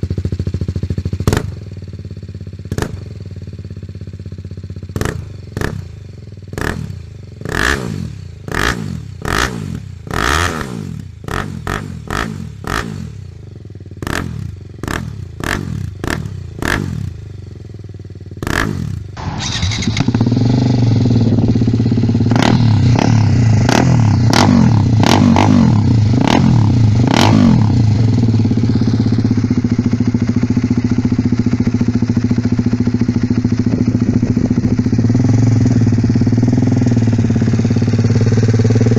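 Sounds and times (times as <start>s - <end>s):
motorcycle engine idling: 0.0s - 38.9s
motorcycle engine throttle blips: 18.4s - 38.9s.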